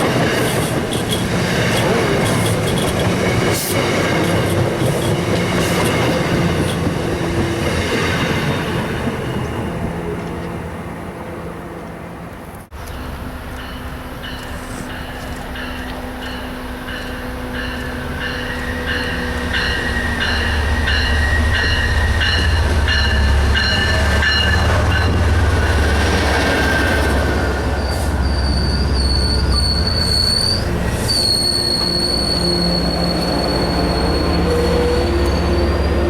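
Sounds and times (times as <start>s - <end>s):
train rumbling on rails: 0.0s - 36.0s
high-pitched wheel squeal: 26.5s - 36.0s.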